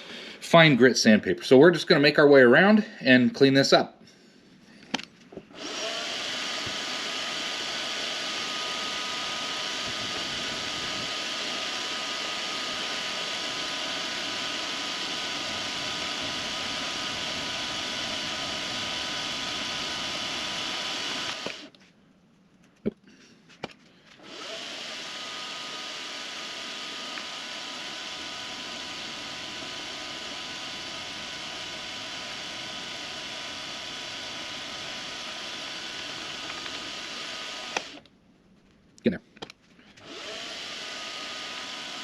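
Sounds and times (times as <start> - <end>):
machine spindle whirring: 5.5 - 21.7, 24.2 - 38.0, 40.0 - 42.0.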